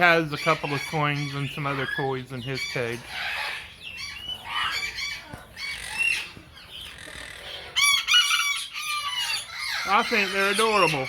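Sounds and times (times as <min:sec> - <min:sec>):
parrots squawking: 0:00.0 - 0:11.0.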